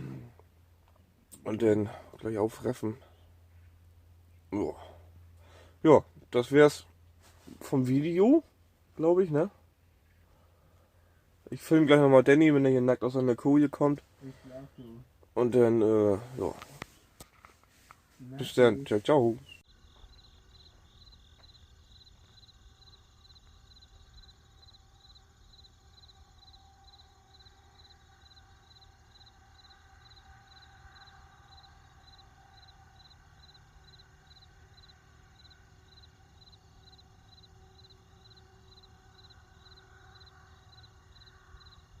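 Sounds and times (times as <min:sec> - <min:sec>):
low background rumble: 0:00.0 - 0:42.0
faint high-pitched chirping: 0:18.3 - 0:42.0.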